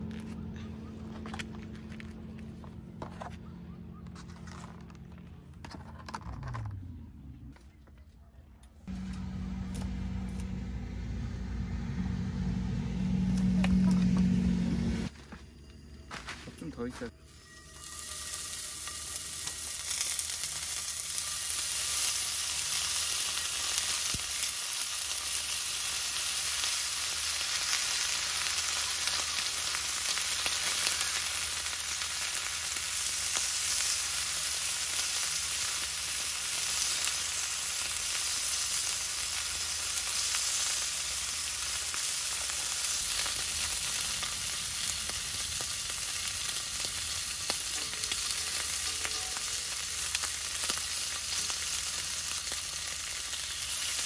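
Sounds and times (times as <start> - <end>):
food frying sizzle: 17.7 - 54.0.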